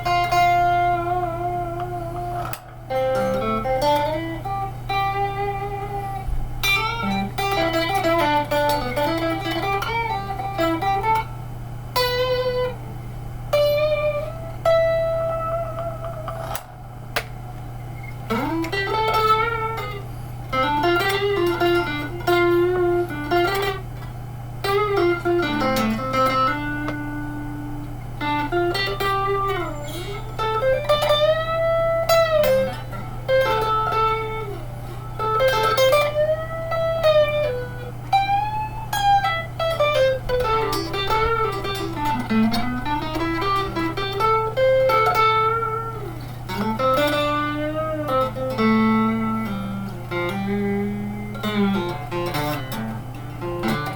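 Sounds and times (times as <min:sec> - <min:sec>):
electric guitar lead melody: 0:00.0 - 0:53.9
low amp hum: 0:00.0 - 0:53.9.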